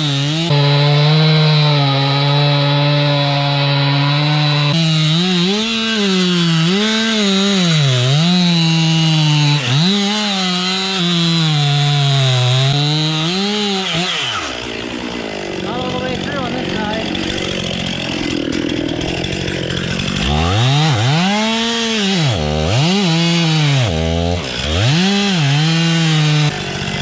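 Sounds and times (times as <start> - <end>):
chainsaw sawing through wood: 0.0 - 27.0.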